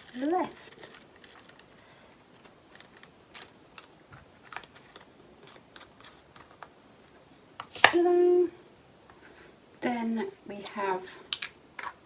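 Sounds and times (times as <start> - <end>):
small plastic items clicking: 0.0 - 6.7.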